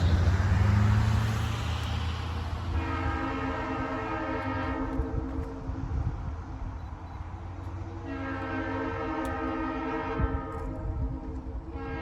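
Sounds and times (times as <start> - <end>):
diesel locomotive rumbling: 0.0 - 12.0
locomotive air horn: 2.7 - 5.7, 7.9 - 12.0.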